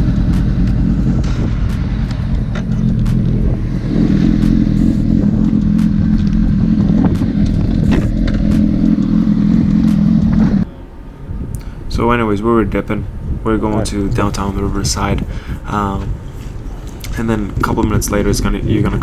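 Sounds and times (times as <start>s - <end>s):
motorcycle engine running: 0.0s - 10.7s.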